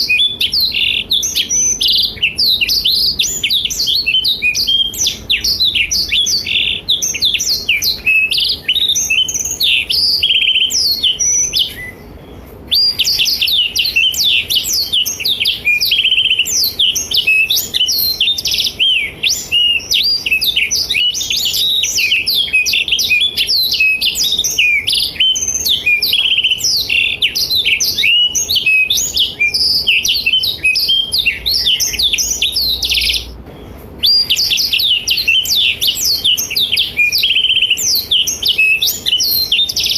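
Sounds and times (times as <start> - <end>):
canary singing high notes: 0.0 - 33.4.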